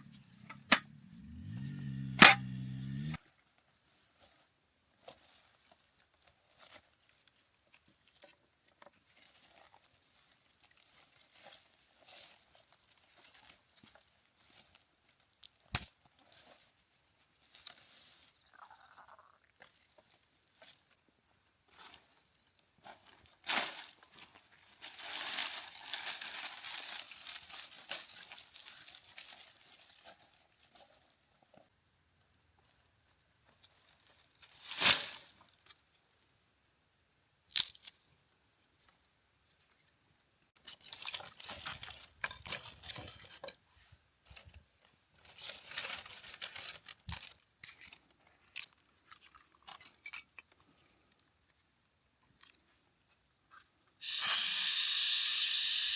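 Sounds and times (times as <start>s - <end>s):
rustling and crinkling handling: 3.4s - 18.6s, 19.6s - 31.7s, 33.5s - 35.9s, 40.6s - 51.4s.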